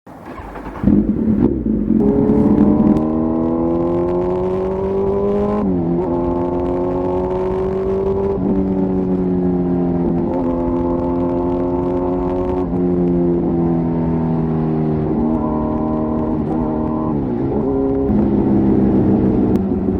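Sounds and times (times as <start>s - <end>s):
motorcycle engine accelerating: 0.1s - 19.9s.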